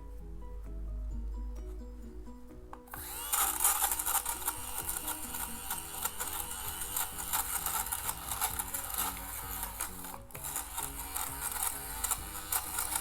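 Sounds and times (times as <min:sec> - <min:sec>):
soft background music: 0:00.0 - 0:13.0
lint remover buzzing: 0:02.7 - 0:13.0.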